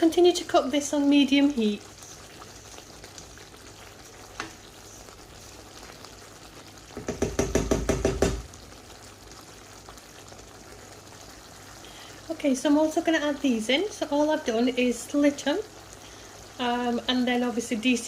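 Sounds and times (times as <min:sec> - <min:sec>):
faint steady sizzle: 0:00.0 - 0:18.0.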